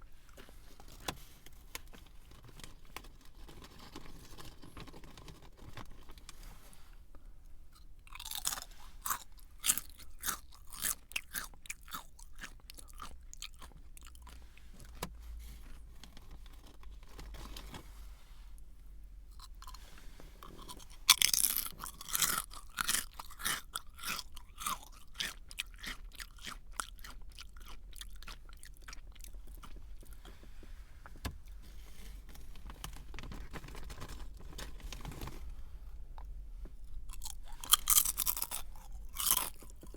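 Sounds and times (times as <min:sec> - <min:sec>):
biting into crunchy snack: 0:07.7 - 0:14.4, 0:20.4 - 0:30.1, 0:37.1 - 0:39.9
chewing crunches: 0:07.7 - 0:14.5, 0:19.3 - 0:30.4, 0:36.2 - 0:39.9.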